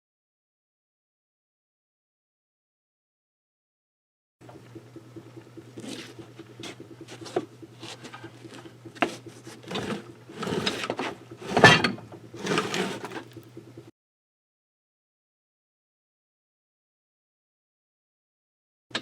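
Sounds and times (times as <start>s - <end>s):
low electrical hum: 4.4s - 13.9s
knocks and scraping on metal and wood: 9.0s - 13.4s.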